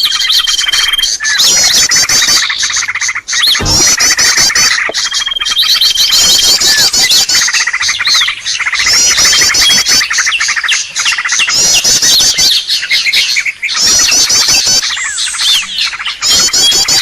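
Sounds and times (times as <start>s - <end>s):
high rapid bird twittering: 0.0s - 17.0s
sharp bird chirps: 0.0s - 17.0s.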